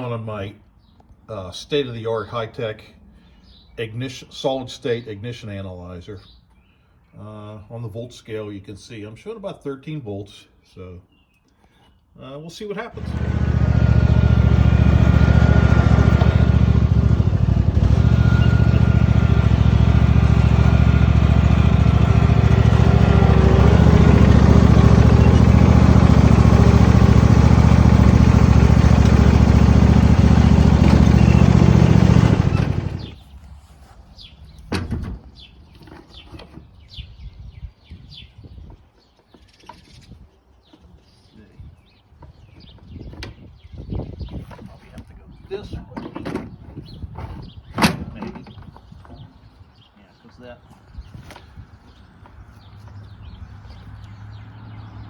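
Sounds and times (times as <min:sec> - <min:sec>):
steady loud motor: 0:12.9 - 0:33.2.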